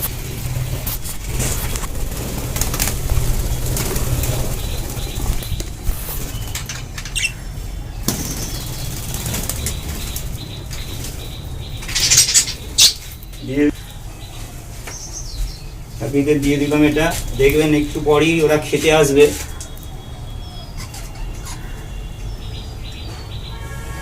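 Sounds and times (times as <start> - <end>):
birds flapping wings: 0.0 - 7.4, 8.0 - 13.4
steady low rumble: 0.0 - 14.7
high bird chirps: 2.8 - 23.7.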